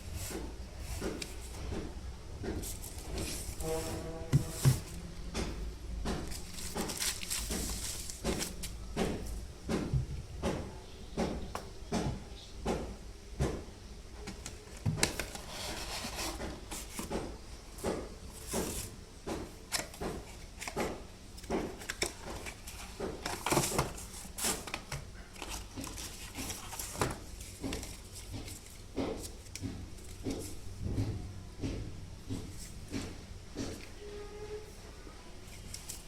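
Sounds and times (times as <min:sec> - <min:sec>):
rustling: 0:06.2 - 0:08.8
knocks and clicks of objects: 0:27.0 - 0:33.9.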